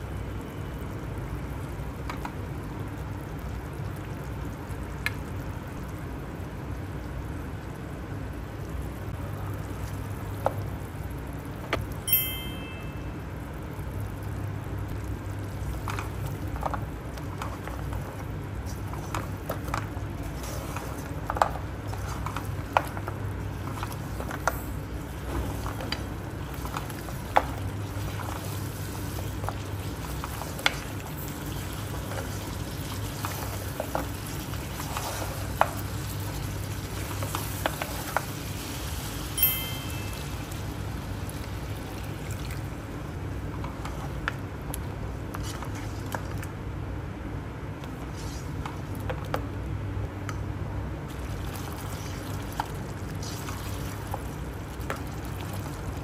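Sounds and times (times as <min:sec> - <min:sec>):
low steady hum: 0:00.0 - 0:37.5, 0:38.4 - 0:56.0
meat sizzling in oil: 0:27.1 - 0:39.4.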